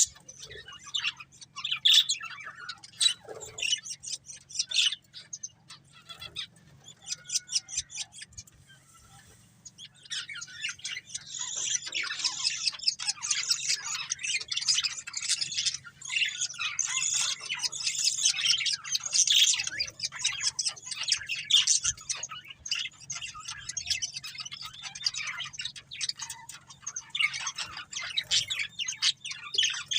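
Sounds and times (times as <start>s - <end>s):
budgerigars chirping and squawking: 0.0s - 29.9s.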